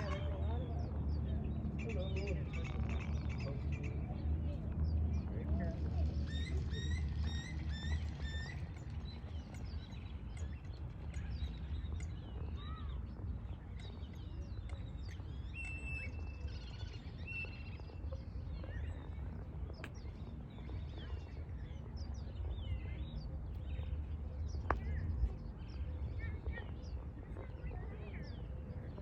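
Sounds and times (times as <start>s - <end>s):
birds chirping and whistling: 0.0s - 29.0s
steady low rumble: 0.0s - 29.0s.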